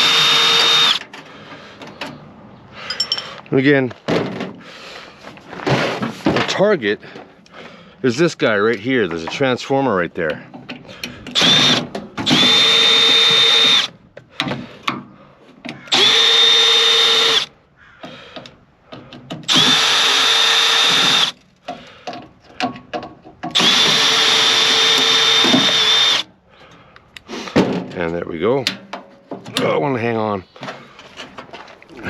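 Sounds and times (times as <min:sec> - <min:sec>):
power drill spinning: 0:00.0 - 0:01.1, 0:11.3 - 0:14.0, 0:15.9 - 0:17.5, 0:19.5 - 0:21.4, 0:23.5 - 0:26.3.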